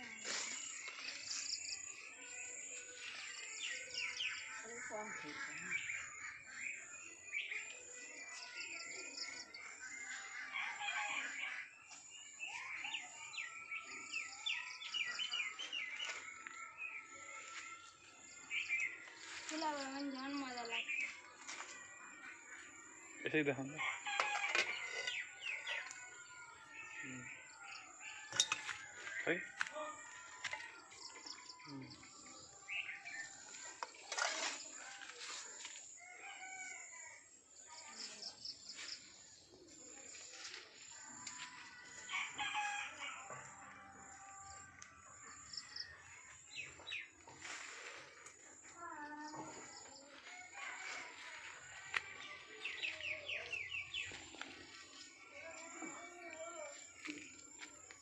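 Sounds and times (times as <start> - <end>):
birds chirping and calling: 0.0 - 26.2, 49.5 - 58.0.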